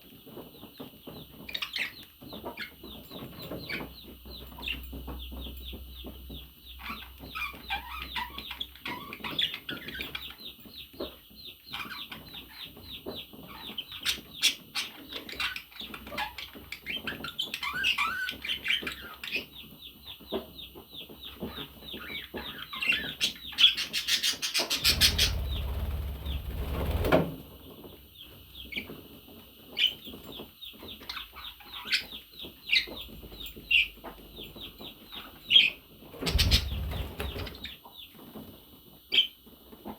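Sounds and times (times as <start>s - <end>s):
budgerigars chirping: 21.3s - 26.5s, 34.6s - 37.8s
noisy burst with low rumble: 24.8s - 27.6s, 36.2s - 37.6s.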